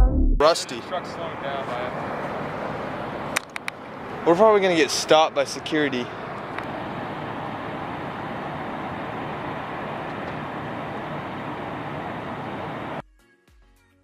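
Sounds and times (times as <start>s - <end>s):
music: 0.0s - 0.4s, 13.0s - 14.0s
outdoor rushing noise: 0.4s - 13.0s.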